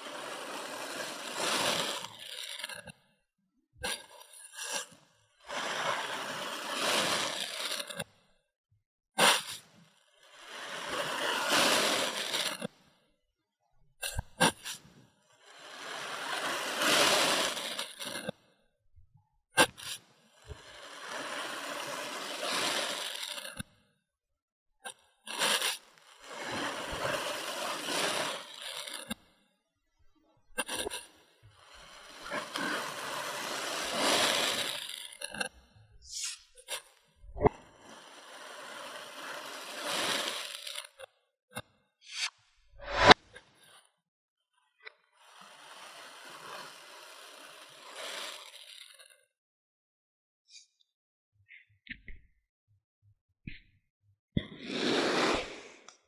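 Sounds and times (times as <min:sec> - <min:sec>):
sand being cut and scraped: 0:00.0 - 0:03.0, 0:03.8 - 0:08.2, 0:09.2 - 0:12.8, 0:14.0 - 0:18.4, 0:19.6 - 0:23.7, 0:25.3 - 0:29.3, 0:30.6 - 0:41.1, 0:42.1 - 0:43.7, 0:44.9 - 0:49.1, 0:54.4 - 0:56.0.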